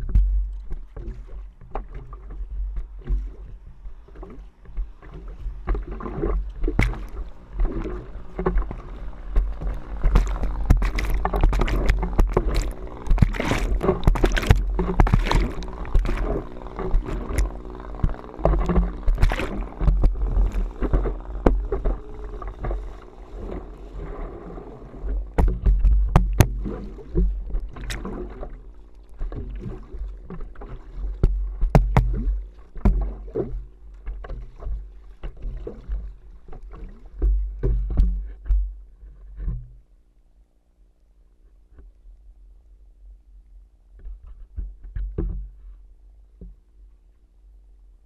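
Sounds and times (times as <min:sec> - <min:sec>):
water splashing and rushing: 0:00.0 - 0:38.3
paddle strokes: 0:00.0 - 0:40.0, 0:43.8 - 0:47.3
wind rumble on microphone: 0:00.0 - 0:40.0, 0:43.1 - 0:48.0
faint steady hum: 0:00.0 - 0:48.0.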